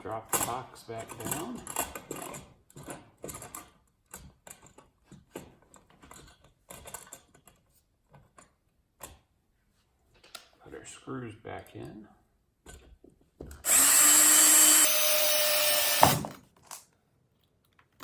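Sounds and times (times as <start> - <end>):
floor box parts clicking and knocking: 0.0 - 9.4, 12.6 - 13.7.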